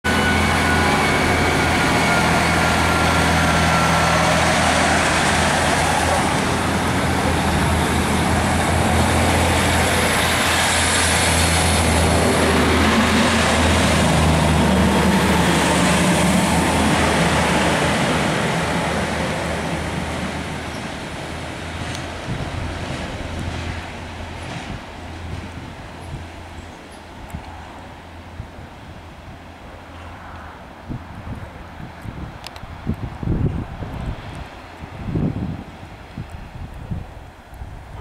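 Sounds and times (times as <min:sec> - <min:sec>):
diesel engine drone: 0:00.0 - 0:26.8
train wheels rumbling on rails: 0:00.1 - 0:38.0.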